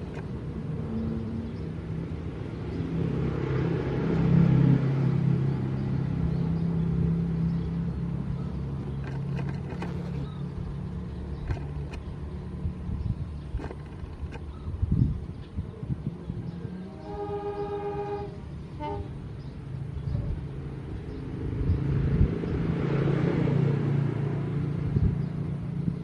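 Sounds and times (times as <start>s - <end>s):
diesel locomotive engine humming: 0.0s - 3.5s, 6.0s - 20.9s.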